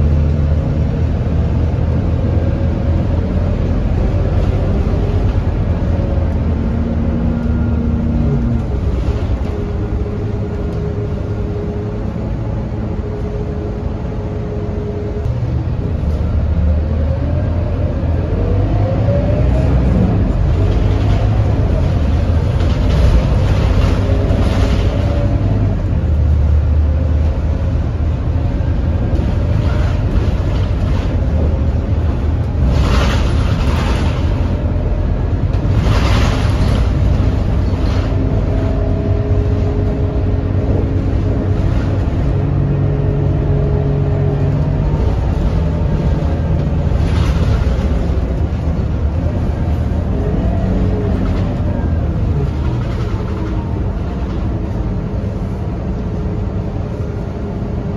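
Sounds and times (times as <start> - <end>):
bus diesel engine: 0.0 - 57.9.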